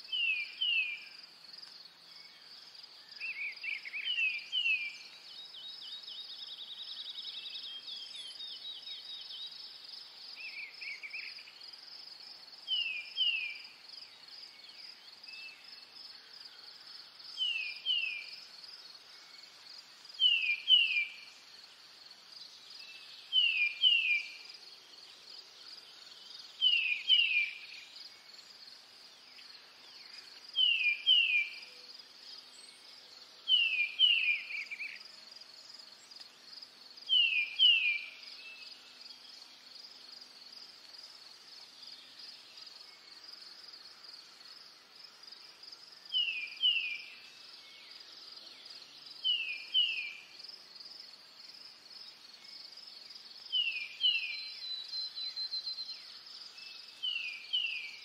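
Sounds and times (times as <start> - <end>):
insect trill: 0.0 - 58.0.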